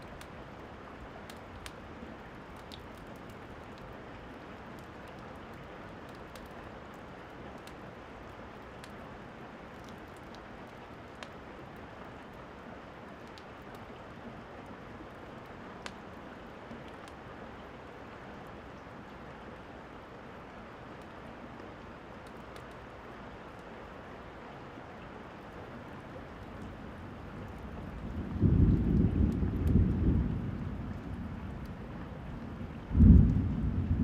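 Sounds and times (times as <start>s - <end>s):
fire crackling: 0.0s - 0.6s, 1.2s - 9.0s, 25.6s - 34.0s
rain drips popping: 0.0s - 34.0s
rainfall hiss: 0.0s - 34.0s.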